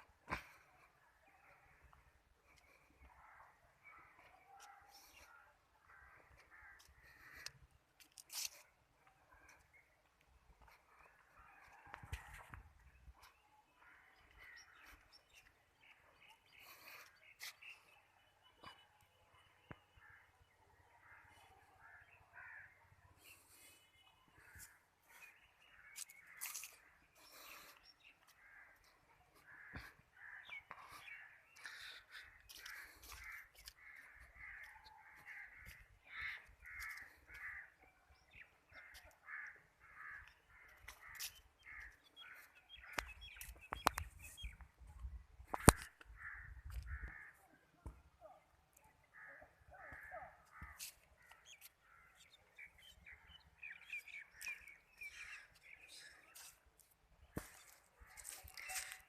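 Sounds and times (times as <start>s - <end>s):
crows cawing: 5.2s - 7.6s, 21.0s - 22.8s, 25.6s - 43.1s, 45.6s - 47.4s, 49.1s - 52.2s, 57.4s - 59.0s.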